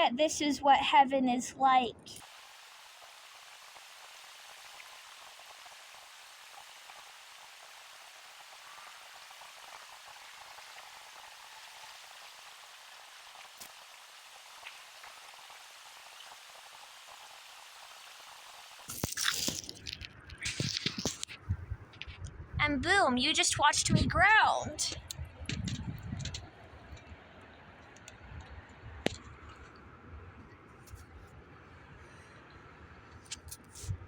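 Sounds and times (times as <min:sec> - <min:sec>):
distant flowing water: 0:02.2 - 0:21.3.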